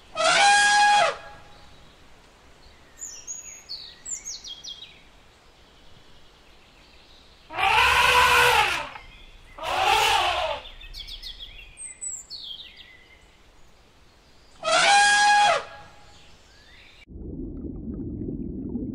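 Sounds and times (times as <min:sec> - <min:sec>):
small birds chirping: 0:02.6 - 0:07.6, 0:08.8 - 0:14.6
elephant trumpeting: 0:07.5 - 0:09.0, 0:09.6 - 0:10.6, 0:14.6 - 0:15.8.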